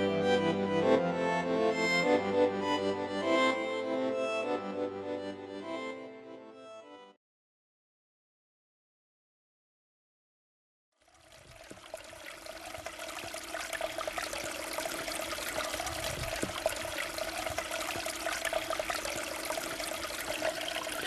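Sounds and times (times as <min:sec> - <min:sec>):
running water: 0:11.0 - 0:21.0.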